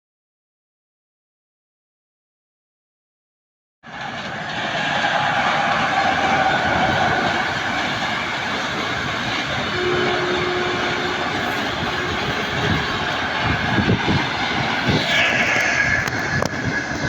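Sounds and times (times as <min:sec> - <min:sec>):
train wheels on rails: 0:03.8 - 0:17.0.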